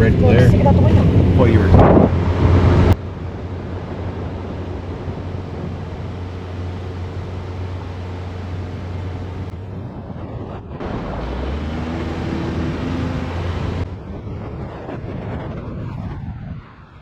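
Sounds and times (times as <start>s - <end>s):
car engine hum: 0.0s - 14.1s
road and wind noise: 0.0s - 17.0s.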